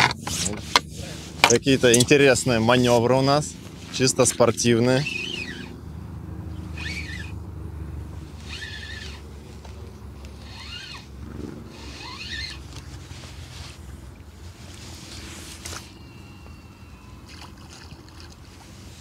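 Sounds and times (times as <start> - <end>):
bird calling: 4.8 - 5.8, 15.1 - 18.3.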